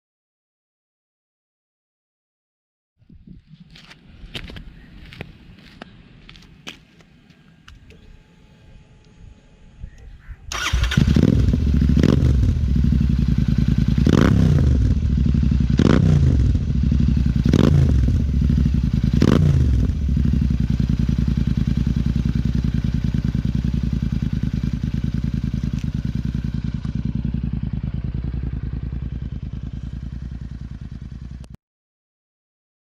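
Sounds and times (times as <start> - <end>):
motorcycle engine revving and idling: 10.5 - 31.6.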